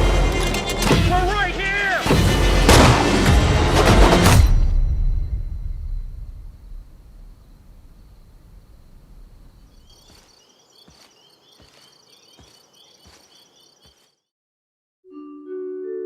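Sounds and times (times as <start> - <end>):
insect-like chirping: 7.2 - 14.1
chime-like music notes: 15.1 - 16.0.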